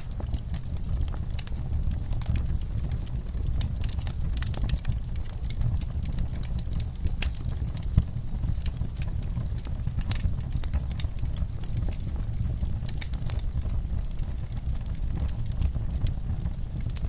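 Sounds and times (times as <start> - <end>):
fire popping: 0.0 - 17.0
wood fire crackling: 0.0 - 17.0.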